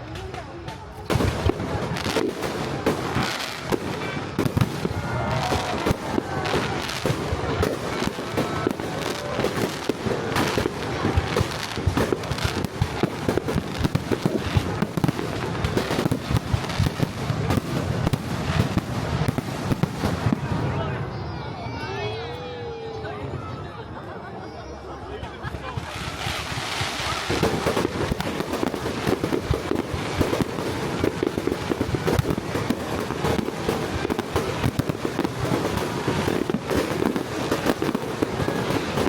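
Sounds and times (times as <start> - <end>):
fireworks bangs and crackles: 0.0 - 23.4, 25.0 - 39.0.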